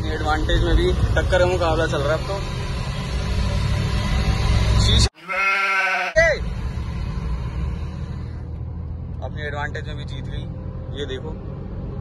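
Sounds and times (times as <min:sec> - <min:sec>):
car engine and road drone: 0:00.0 - 0:05.1, 0:06.2 - 0:12.0
high-pitched bleat-like call: 0:05.2 - 0:06.2.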